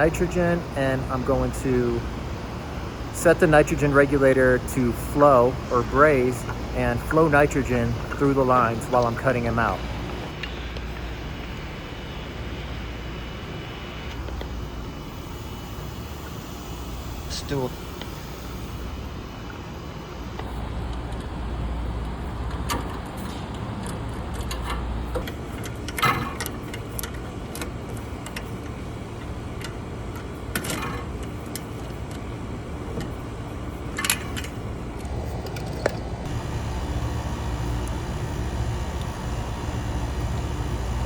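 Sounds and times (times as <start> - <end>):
steady low rumble: 36.1 - 41.0.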